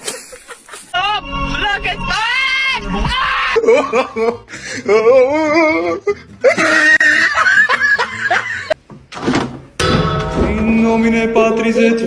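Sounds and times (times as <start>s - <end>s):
person laughing: 0.0s - 1.0s, 3.5s - 8.8s.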